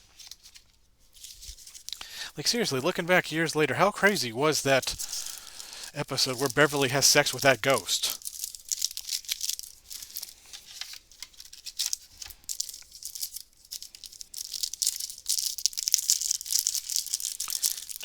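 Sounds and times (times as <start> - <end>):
wrapper and cards crinkling: 0.0 - 18.0.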